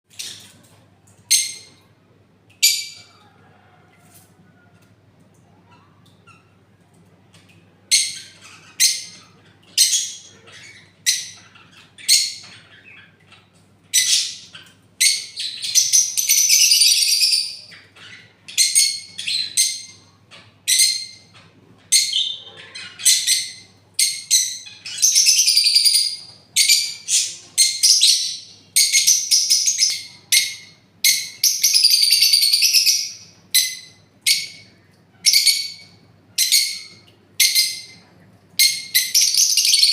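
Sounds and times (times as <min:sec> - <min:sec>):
parrots screeching: 0:07.9 - 0:13.3, 0:14.0 - 0:38.0, 0:38.6 - 0:39.9.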